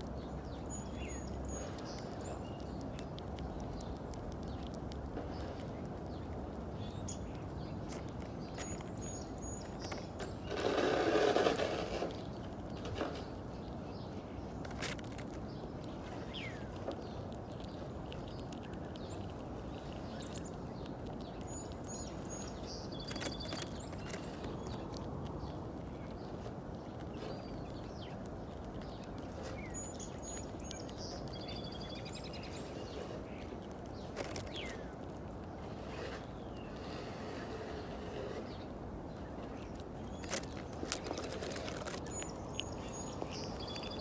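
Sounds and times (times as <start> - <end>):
outdoor background noise: 0.0 - 44.0
songbird chirps and warbling: 0.0 - 44.0
loud rustle: 10.5 - 12.2.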